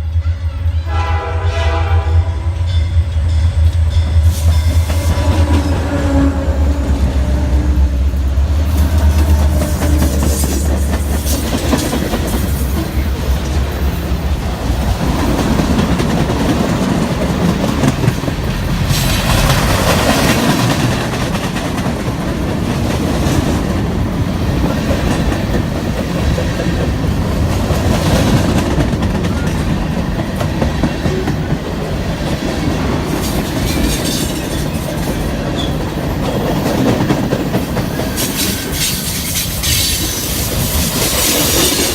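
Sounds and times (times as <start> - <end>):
deep train engine drone: 0.0 - 41.9
railcar wheels clattering over joints: 8.5 - 41.9.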